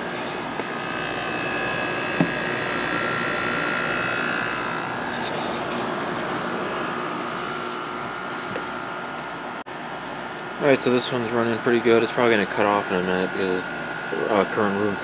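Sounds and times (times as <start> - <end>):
thin high whine: 0.0 - 9.6, 10.4 - 15.0
air conditioner humming: 0.0 - 15.0.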